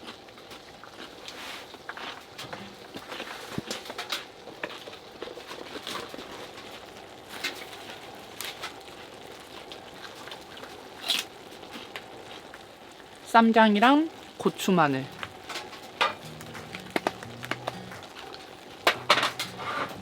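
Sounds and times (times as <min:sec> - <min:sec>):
food containers clicking and rustling: 0:15.1 - 0:20.0.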